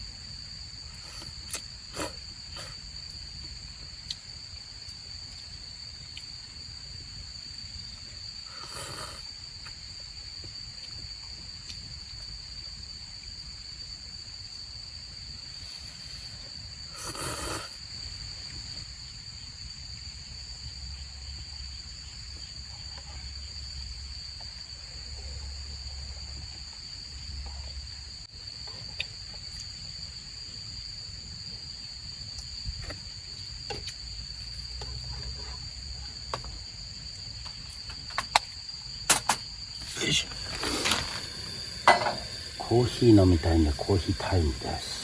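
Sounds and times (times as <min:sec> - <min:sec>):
crickets chirping: 0:00.0 - 0:45.0
short burst of noise: 0:39.8 - 0:45.0.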